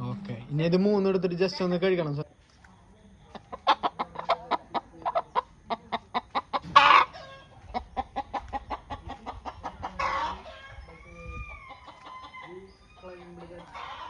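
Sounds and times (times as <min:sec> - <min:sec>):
chickens clucking: 0:02.8 - 0:14.0.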